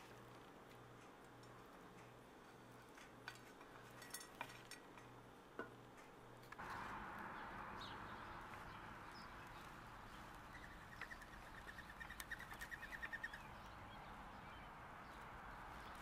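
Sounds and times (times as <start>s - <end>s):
bird singing rapid trill: 7.4s - 15.2s.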